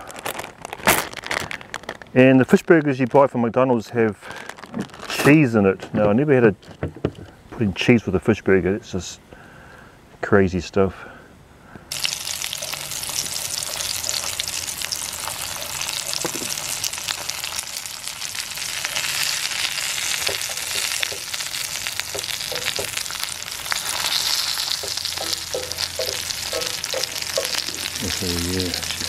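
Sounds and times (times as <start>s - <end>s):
tongs moving in a pan: 11.9s - 28.0s
fish fingers sizzling in oil: 11.9s - 29.0s.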